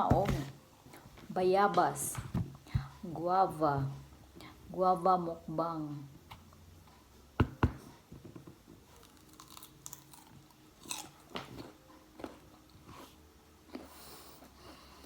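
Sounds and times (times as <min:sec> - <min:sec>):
chewing with crisp crunches: 0:08.9 - 0:14.1
biting into crunchy guava: 0:09.0 - 0:11.4.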